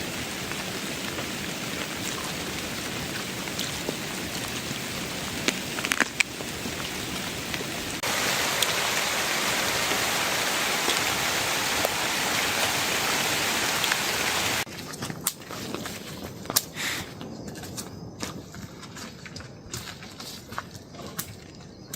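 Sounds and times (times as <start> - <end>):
heavy rain hissing: 0.0 - 14.7.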